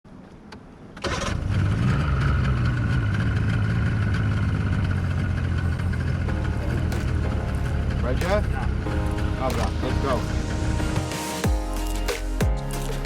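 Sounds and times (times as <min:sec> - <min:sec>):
engine running with low drone: 0:01.3 - 0:11.0.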